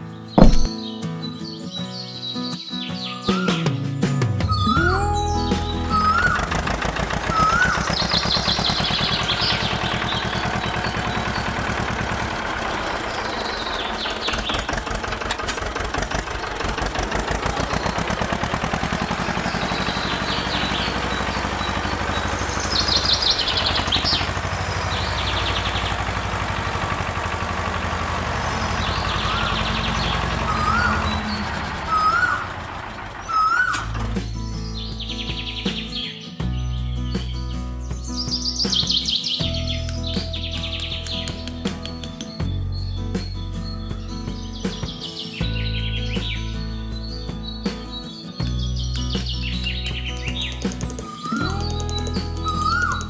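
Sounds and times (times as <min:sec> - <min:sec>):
small engine puttering: 0:06.1 - 0:33.3, 0:39.4 - 0:42.4, 0:48.4 - 0:53.0
birds chirping: 0:39.4 - 0:42.4, 0:47.9 - 0:53.0.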